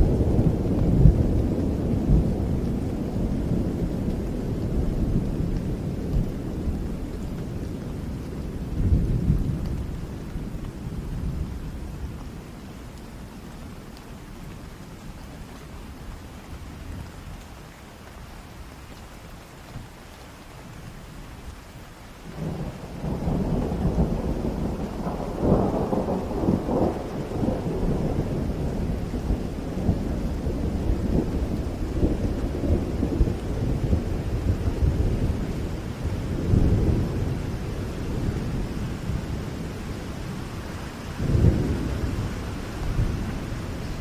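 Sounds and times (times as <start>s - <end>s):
thunder rumbling: 0.0s - 12.3s, 22.3s - 44.0s
steady rain falling: 0.0s - 44.0s.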